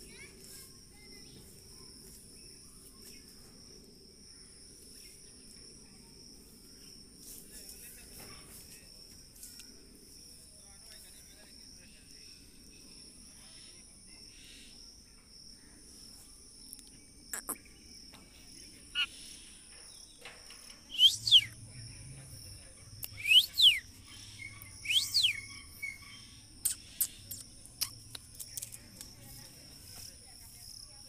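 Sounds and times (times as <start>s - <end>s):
sharp bird calls: 18.9s - 19.6s, 20.9s - 21.6s, 23.0s - 28.8s
high insect buzz: 20.8s - 31.0s.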